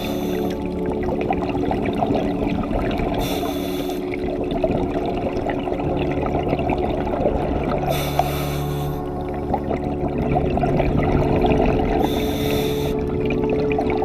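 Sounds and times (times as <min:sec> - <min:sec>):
diver regulator breathing: 0:00.0 - 0:00.6, 0:03.2 - 0:04.2, 0:07.8 - 0:09.1, 0:12.0 - 0:13.0
hissing exhaled bubbles: 0:00.0 - 0:13.4.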